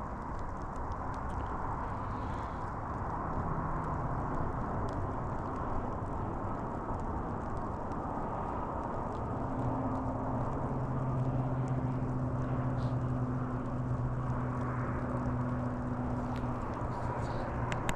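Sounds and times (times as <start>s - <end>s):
low rushing noise: 0.0s - 4.3s
distant engine drone: 0.0s - 17.9s.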